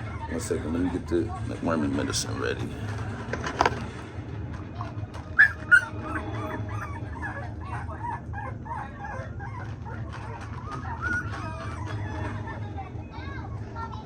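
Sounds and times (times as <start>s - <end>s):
puppies whining and squeaking: 5.2s - 14.0s
puppy yelps: 5.4s - 12.5s.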